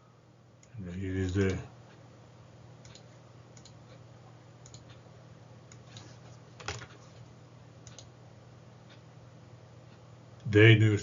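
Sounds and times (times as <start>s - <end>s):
steady low hum: 0.0s - 11.0s
computer keyboard clicks: 2.9s - 3.8s, 4.6s - 5.0s.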